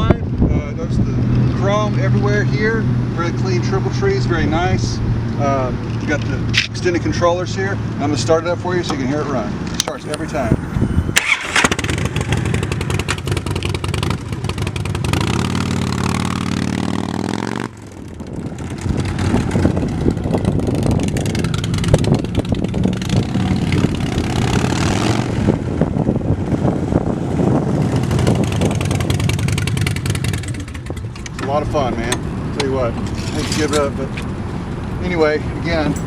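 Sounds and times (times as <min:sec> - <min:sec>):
motorcycle engine revving: 0:09.3 - 0:34.8.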